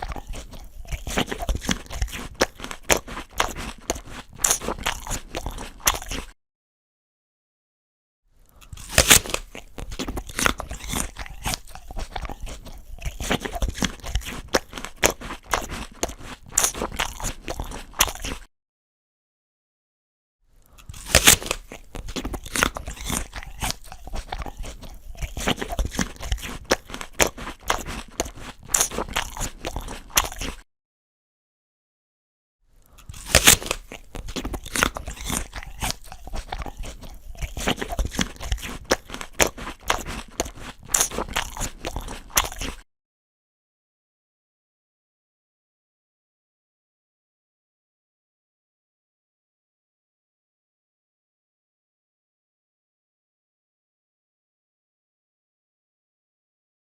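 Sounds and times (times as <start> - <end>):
crunchy chewing: 0.0 - 6.4, 8.4 - 18.5, 20.6 - 30.6, 32.8 - 42.8
person biting an apple: 0.0 - 6.4, 8.5 - 18.5, 20.6 - 30.6, 32.8 - 42.8.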